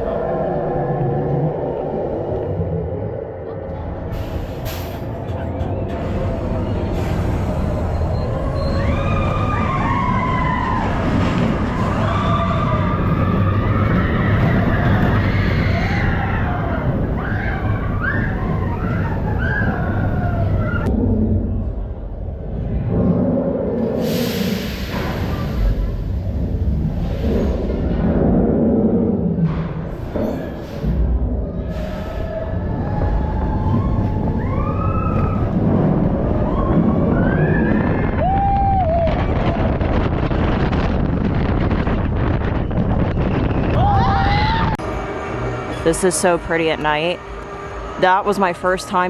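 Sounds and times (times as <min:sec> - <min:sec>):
roller coaster rumbling on track: 0:00.0 - 0:49.0
rushing wind: 0:00.0 - 0:49.0
riders screaming: 0:08.6 - 0:20.9, 0:36.4 - 0:39.6, 0:43.6 - 0:44.8.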